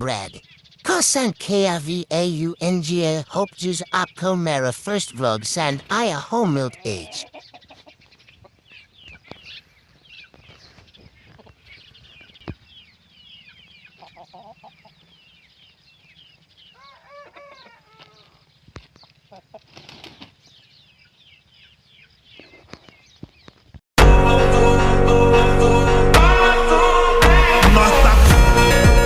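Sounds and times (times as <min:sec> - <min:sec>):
chickens clucking: 0:00.0 - 0:09.6, 0:10.2 - 0:12.6, 0:13.4 - 0:15.8, 0:16.7 - 0:23.3
chicks chirping: 0:00.0 - 0:18.3.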